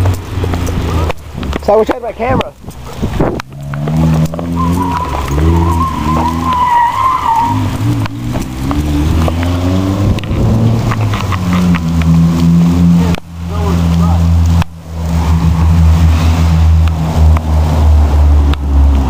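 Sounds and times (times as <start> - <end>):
car engine revving: 0.0 - 19.0
tire squeal: 2.8 - 13.0, 15.0 - 19.0.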